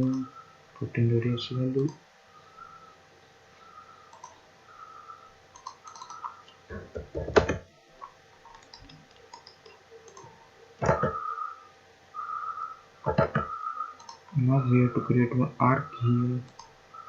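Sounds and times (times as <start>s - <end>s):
computer mouse clicks: 4.1s - 4.4s, 5.5s - 11.4s, 12.2s - 14.4s, 16.5s - 16.7s
keyboard keystrokes: 5.6s - 7.6s.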